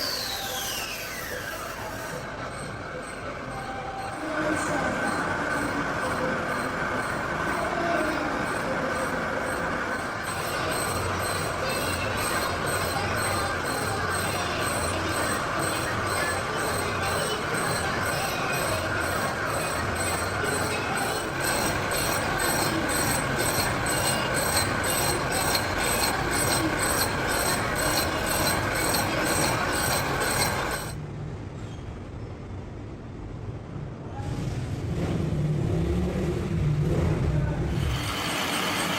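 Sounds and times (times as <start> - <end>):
machine high-pitched squeal: 0.0 - 31.0, 37.7 - 38.9
rapid machine ticking: 1.6 - 31.0.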